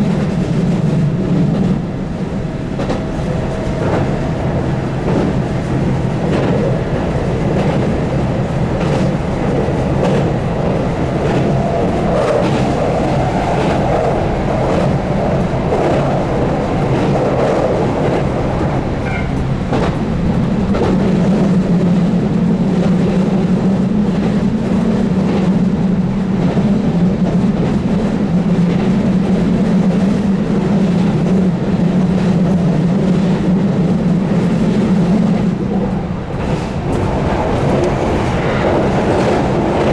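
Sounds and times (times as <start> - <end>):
train running noise: 0.0 - 39.9
wheels clicking over rail joints: 1.4 - 22.0, 33.8 - 39.9
traction motor hum: 1.8 - 13.3.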